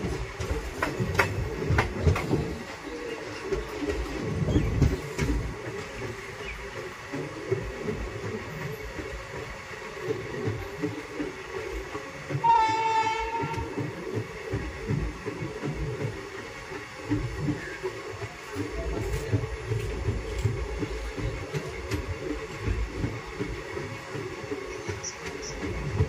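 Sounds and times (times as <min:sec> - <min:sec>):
train rumbling: 0:00.0 - 0:26.0
train wheel clatter: 0:00.0 - 0:26.0
train horn: 0:12.4 - 0:13.7.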